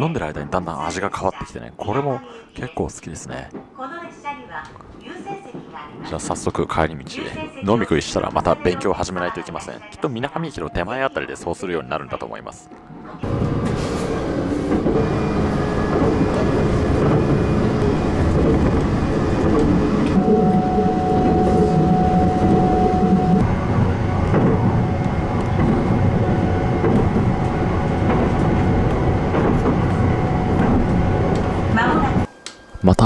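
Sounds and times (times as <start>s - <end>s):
train wheels rumbling on rails: 12.9s - 32.3s
thin steady whine: 20.2s - 27.4s.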